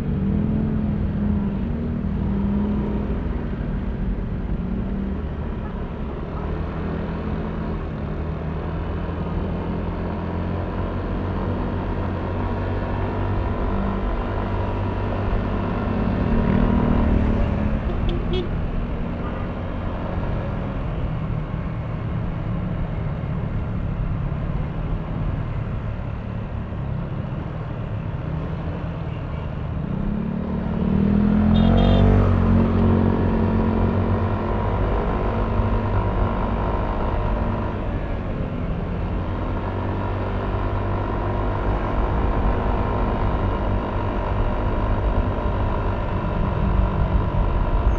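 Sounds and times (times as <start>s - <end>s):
road and wind noise: 0.0s - 47.9s.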